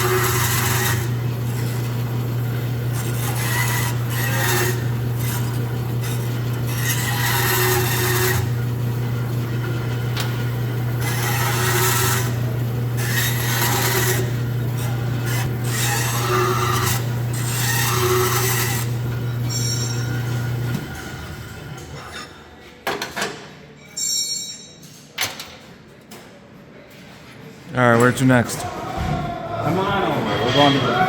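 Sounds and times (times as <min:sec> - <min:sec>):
machine motor humming: 0:00.0 - 0:22.0
metal grinding: 0:00.0 - 0:22.5.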